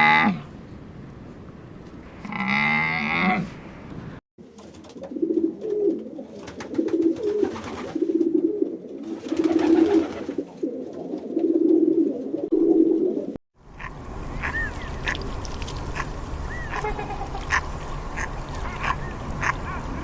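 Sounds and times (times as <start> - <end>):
pigeon cooing: 4.9 - 15.2, 16.0 - 17.6.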